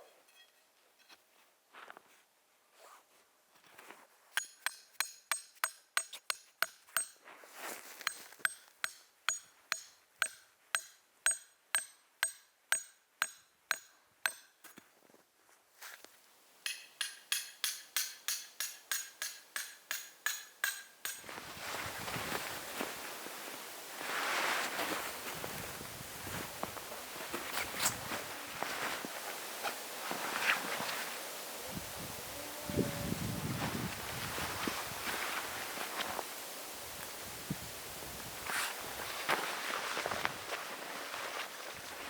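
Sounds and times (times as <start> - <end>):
hammer striking metal peg: 4.4 - 7.2, 8.0 - 14.8, 16.6 - 21.3.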